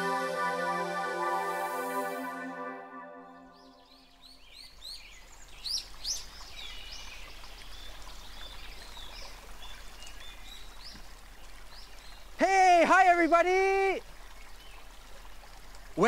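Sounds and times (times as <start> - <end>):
music: 0.0 - 4.1.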